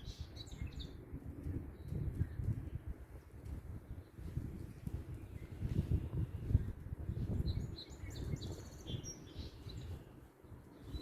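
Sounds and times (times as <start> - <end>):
wind buffeting microphone: 0.0 - 11.0
faint bird chirp: 5.1 - 11.0.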